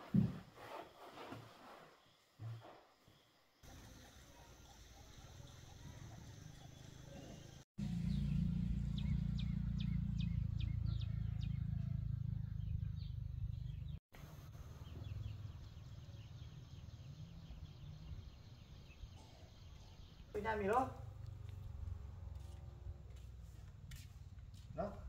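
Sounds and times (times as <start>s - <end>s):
small birds chirping: 3.1s - 22.7s.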